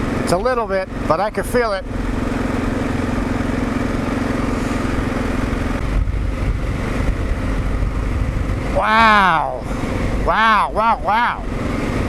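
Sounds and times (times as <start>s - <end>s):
motorcycle engine running: 0.0s - 12.0s
wind noise: 4.9s - 12.0s.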